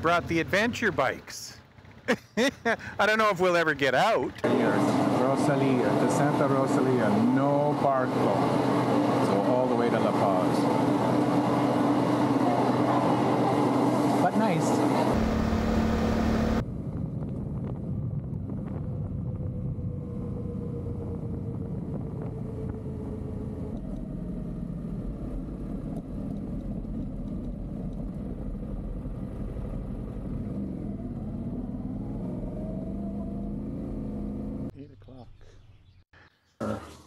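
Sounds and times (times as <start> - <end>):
motorcycle engine running: 0.0 - 3.0, 15.0 - 16.7
road noise: 0.0 - 34.8.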